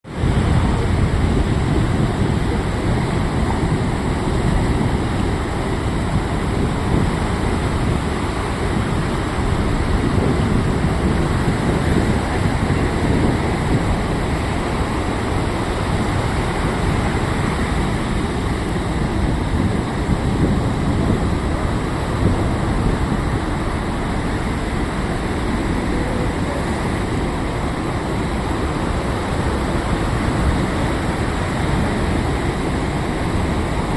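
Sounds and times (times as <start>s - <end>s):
breaking sea waves rumbling: 0.0s - 33.9s.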